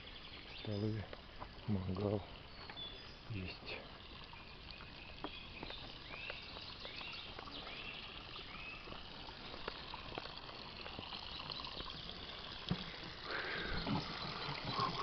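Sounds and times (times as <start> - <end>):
trickle of spring water: 0.0 - 15.0.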